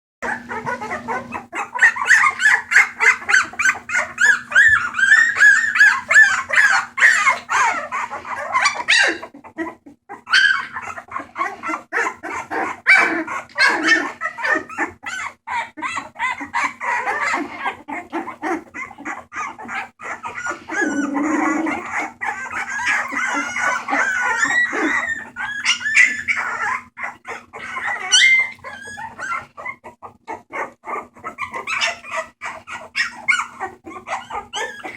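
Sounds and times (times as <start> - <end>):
puppies yipping and whining: 0.2 - 34.9.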